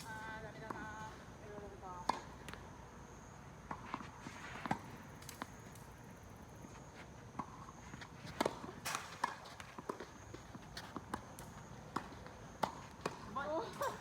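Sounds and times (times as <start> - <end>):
footsteps on a tennis court: 3.6 - 14.0.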